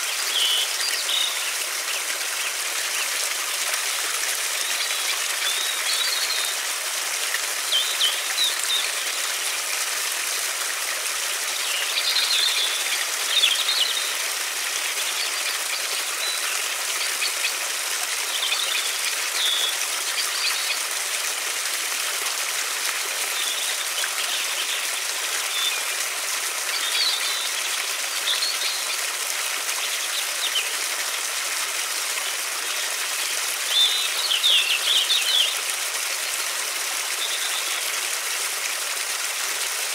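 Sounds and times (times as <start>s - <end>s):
small birds chirping: 0.0s - 3.2s, 4.4s - 6.7s, 7.6s - 9.2s, 11.4s - 20.9s, 26.6s - 30.8s, 32.6s - 35.7s, 37.2s - 37.9s
river water rushing: 0.0s - 39.9s.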